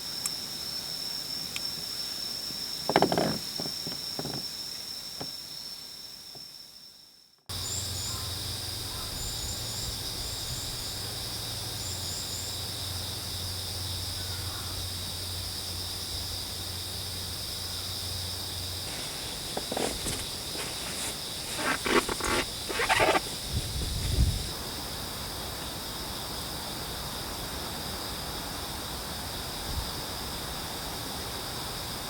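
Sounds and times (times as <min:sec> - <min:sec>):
insect chorus trilling: 0:00.0 - 0:32.0
close knocks and rustles: 0:18.8 - 0:24.5.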